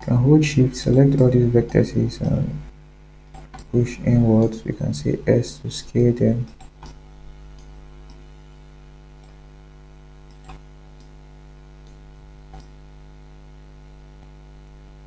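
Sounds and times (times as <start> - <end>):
electrical mains hum: 0.0 - 15.0
faint clicks: 6.4 - 8.3, 9.2 - 9.4, 10.2 - 11.2, 11.8 - 12.8.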